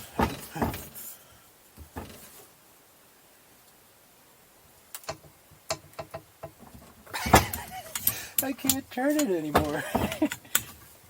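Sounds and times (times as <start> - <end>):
hand tools clicking and tapping: 4.9 - 10.9.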